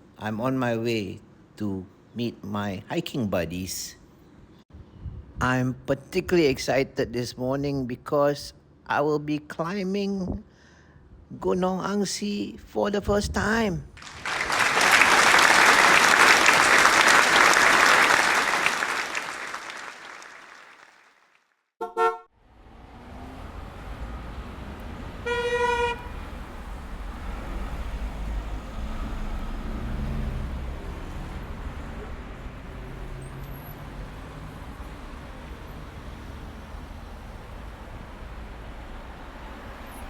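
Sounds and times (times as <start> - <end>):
car horn: 21.8 - 22.3, 25.2 - 26.3
vehicle road rumble: 22.4 - 40.0.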